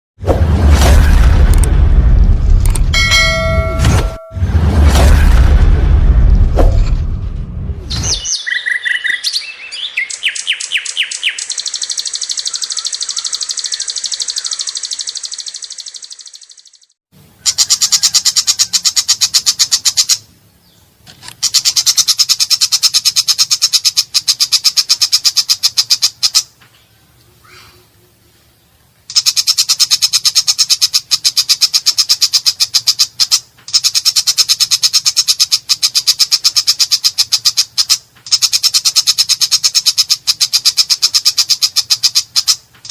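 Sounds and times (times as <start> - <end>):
high bird trill: 7.9 - 20.8, 29.1 - 42.9
shrike singing harsh rapid notes: 9.9 - 16.9.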